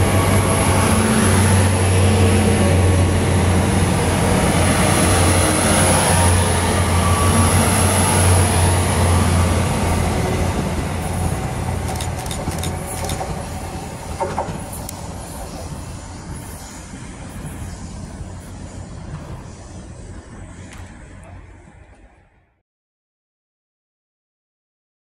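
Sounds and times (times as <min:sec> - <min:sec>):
train diesel engine hum: 0:00.0 - 0:22.6
wheel and rail rumble: 0:00.0 - 0:22.6
sharp clicks: 0:11.9 - 0:13.3.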